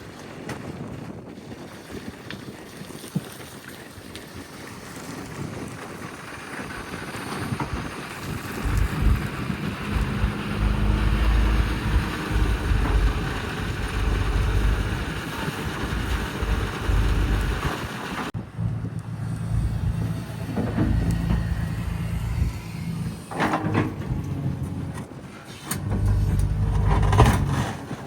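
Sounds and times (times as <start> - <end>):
excavator diesel engine digging: 6.8 - 28.0.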